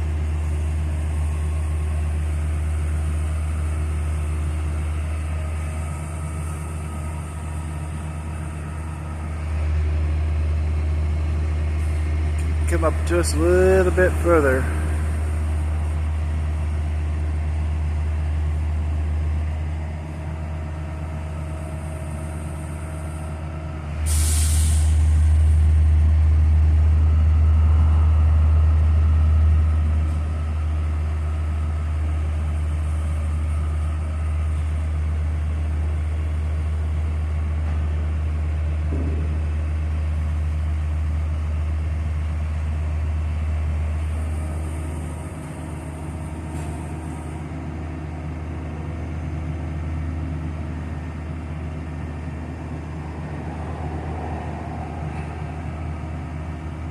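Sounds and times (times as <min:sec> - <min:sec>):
heavy diesel engine droning: 0:00.0 - 0:56.9
air hiss: 0:24.0 - 0:25.3.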